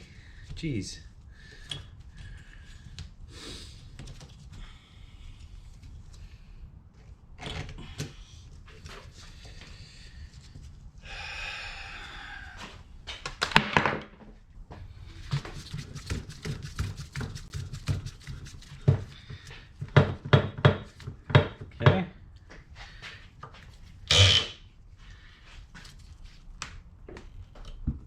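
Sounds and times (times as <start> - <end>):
rasping sound: 24.1 - 24.6.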